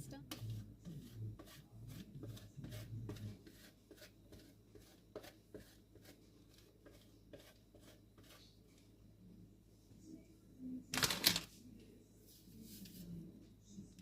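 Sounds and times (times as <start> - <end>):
cheese scraping on grater: 0.4 - 8.4.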